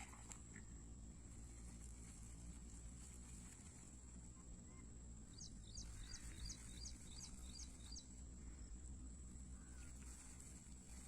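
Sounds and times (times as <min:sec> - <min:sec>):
low background rumble: 0:00.0 - 0:11.0
bird chirping faintly: 0:04.2 - 0:10.6.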